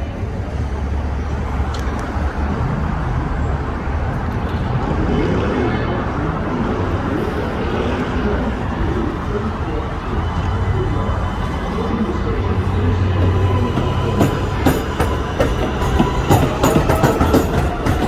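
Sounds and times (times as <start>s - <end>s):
city traffic rumble: 0.0s - 18.0s.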